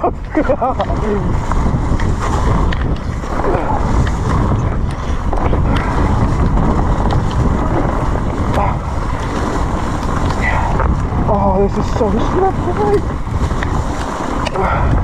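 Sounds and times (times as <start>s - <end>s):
bike tyre noise: 0.0s - 15.0s
wind on microphone: 0.0s - 15.0s
bike rattling clicks and knocks: 0.3s - 11.2s.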